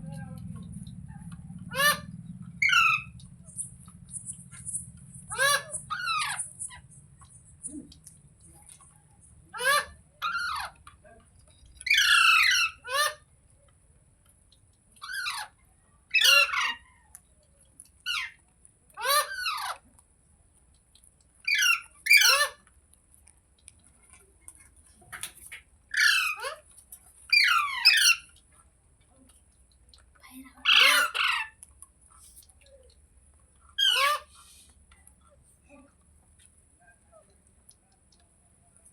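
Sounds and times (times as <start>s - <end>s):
parakeet squawking: 1.5s - 7.4s, 9.5s - 10.8s, 11.8s - 13.2s, 15.0s - 16.8s, 21.4s - 22.6s, 25.9s - 26.6s, 27.3s - 28.4s, 30.6s - 31.6s, 33.8s - 34.5s.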